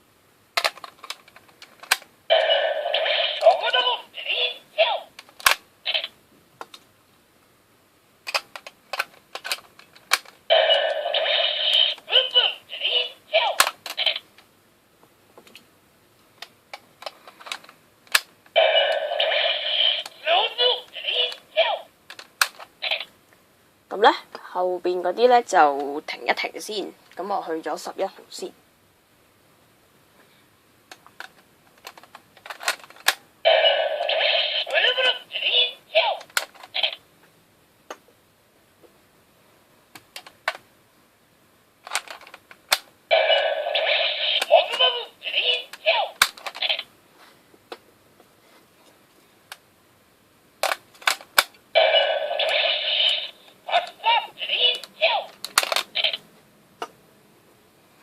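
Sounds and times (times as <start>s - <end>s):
toy snapping shut: 0.6s - 1.2s, 5.2s - 6.0s, 8.3s - 10.4s, 50.6s - 51.6s, 54.7s - 56.2s
plastic toy clicks: 0.6s - 2.1s, 5.2s - 5.6s, 8.3s - 10.4s, 30.9s - 33.2s, 41.9s - 42.8s, 50.6s - 51.6s, 54.7s - 56.2s
toy electronic sound effect: 2.3s - 4.6s, 10.5s - 14.2s, 18.6s - 21.4s, 33.5s - 35.8s, 43.1s - 45.8s, 51.8s - 56.2s.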